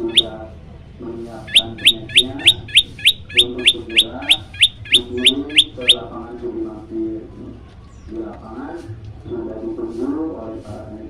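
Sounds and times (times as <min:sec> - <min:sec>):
bird chirping rapidly: 0:00.0 - 0:00.4, 0:01.4 - 0:06.1
lower-pitched bird calls: 0:00.0 - 0:00.4, 0:01.4 - 0:06.1.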